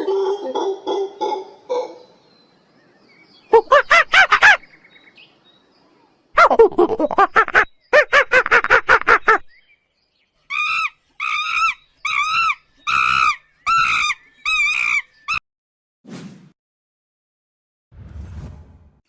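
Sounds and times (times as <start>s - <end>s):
animal calls: 0.0s - 2.2s, 3.5s - 4.7s, 10.5s - 15.4s.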